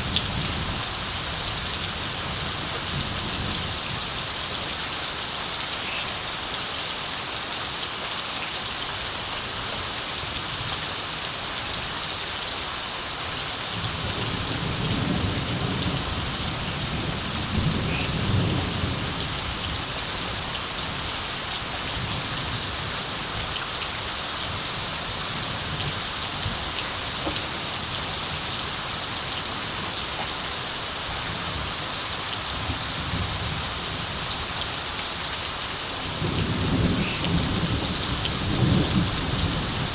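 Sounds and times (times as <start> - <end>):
heavy rain hissing: 0.0 - 39.9
distant thunder rumbling: 14.0 - 19.6.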